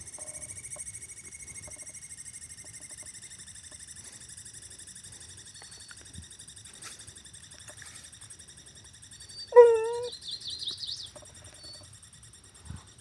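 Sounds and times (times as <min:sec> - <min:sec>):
dog whining yelp: 0:09.4 - 0:10.2.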